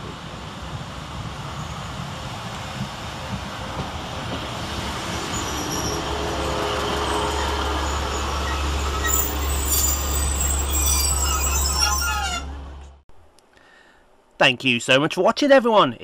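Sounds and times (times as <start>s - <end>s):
train wheels rumbling on rails: 0.0s - 13.0s
brake squeals: 5.2s - 13.0s.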